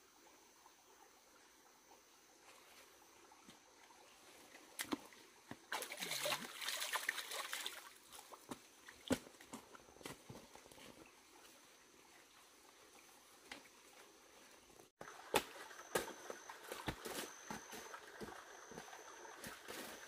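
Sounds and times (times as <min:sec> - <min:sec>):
water sloshing and splashing: 0:04.1 - 0:11.1, 0:15.0 - 0:20.0.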